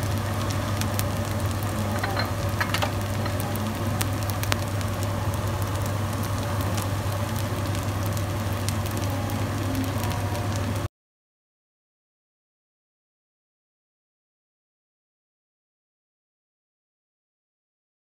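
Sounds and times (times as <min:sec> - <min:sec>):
rice sizzling in a wok: 0:00.0 - 0:10.9.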